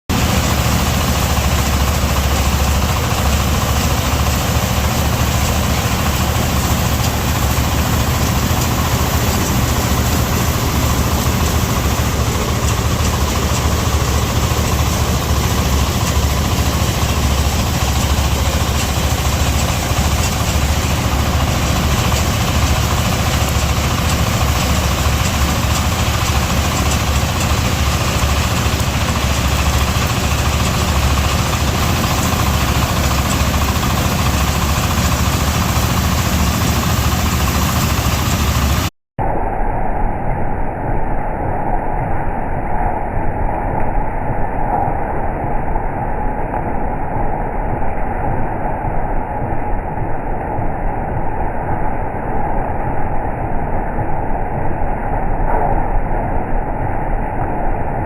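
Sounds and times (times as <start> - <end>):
engine running with low hum: 0.0 - 38.9.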